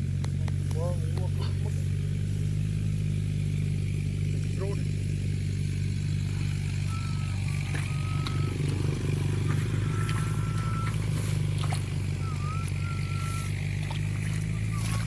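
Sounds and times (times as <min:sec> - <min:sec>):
small engine running: 0:00.0 - 0:15.0
high whistle-like tones: 0:06.4 - 0:15.0.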